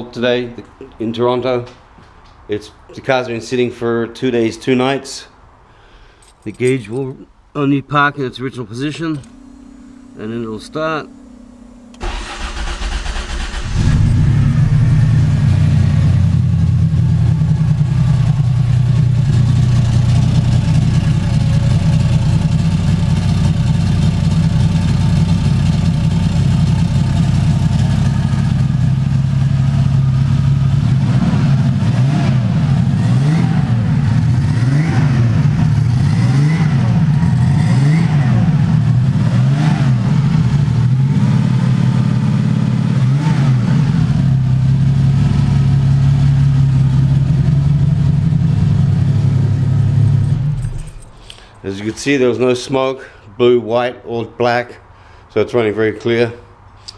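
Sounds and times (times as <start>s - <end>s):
car engine cranking: 8.9s - 41.1s, 44.2s - 51.6s
car engine running and revving: 11.1s - 51.0s.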